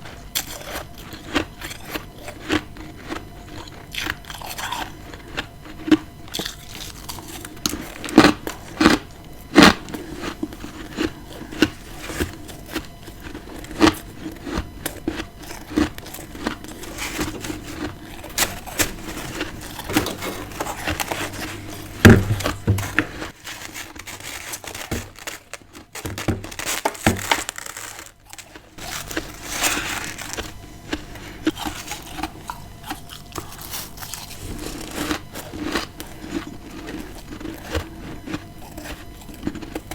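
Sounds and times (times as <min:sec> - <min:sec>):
chewing and crunching frost: 0:00.0 - 0:39.9.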